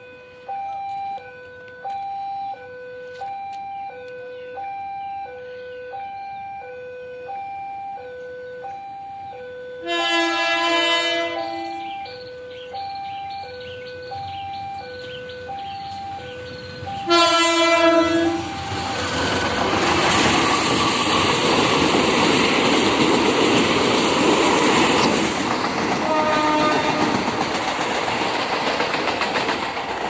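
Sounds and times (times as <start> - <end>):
two-tone crossing warning bell: 0.0 - 28.4
train passing rumble: 8.6 - 30.0
train horn: 9.7 - 12.0, 17.0 - 18.6, 26.0 - 27.3
wheels clacking over rail joints: 14.1 - 30.0.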